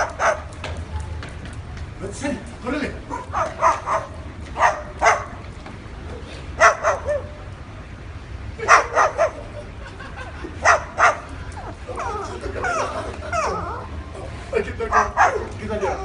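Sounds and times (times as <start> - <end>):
parrot barking like a dog: 0.0 - 0.5, 3.1 - 5.4, 6.6 - 7.4, 8.6 - 9.5, 10.6 - 14.0, 14.9 - 16.0.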